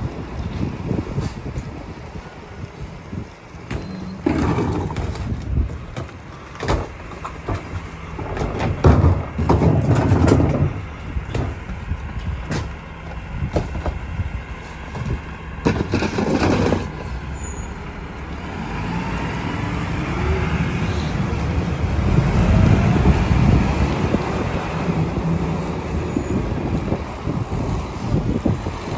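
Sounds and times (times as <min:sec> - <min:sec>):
trash and bins clattering: 0:03.6 - 0:17.4
diesel engine revving: 0:07.3 - 0:28.9.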